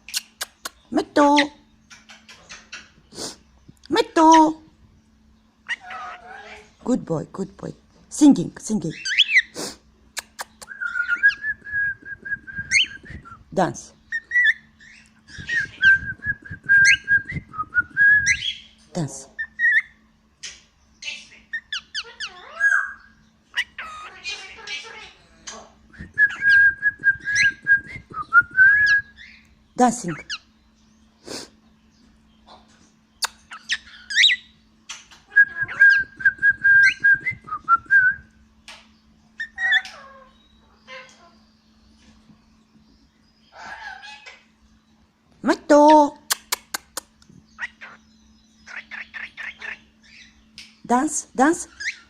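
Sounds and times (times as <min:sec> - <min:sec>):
bird whistling: 0:10.6 - 0:13.4, 0:14.1 - 0:18.7, 0:26.0 - 0:29.4, 0:35.3 - 0:38.2
bird chirps: 0:31.8 - 0:38.2, 0:45.8 - 0:51.0.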